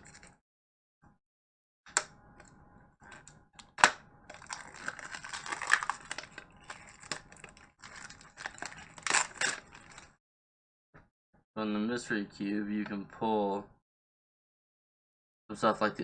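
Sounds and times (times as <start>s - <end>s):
packaging clicks and cracks: 1.9s - 10.1s
wrapping crackling and crinkling: 2.4s - 10.2s.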